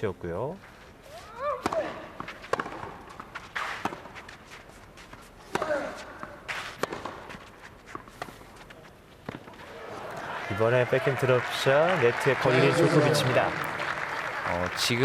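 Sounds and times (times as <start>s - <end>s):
racket striking tennis ball: 1.6s - 4.2s, 5.5s - 7.4s.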